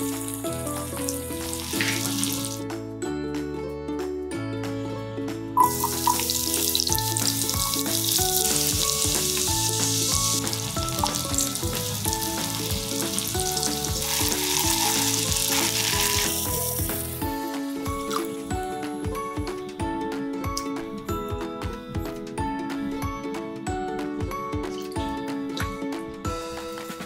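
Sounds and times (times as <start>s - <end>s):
oil sizzling in a frying pan: 0.0s - 2.6s, 5.6s - 18.5s.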